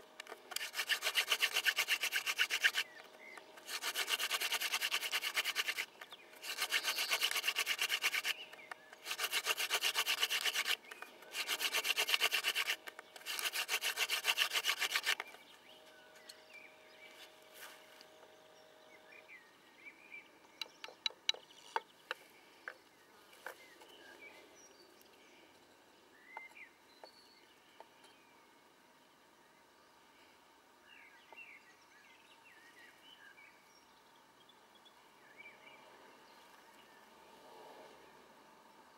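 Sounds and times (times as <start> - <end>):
wooden spindle rubbing on board: 0.2 - 2.9, 3.6 - 8.4, 9.0 - 15.2.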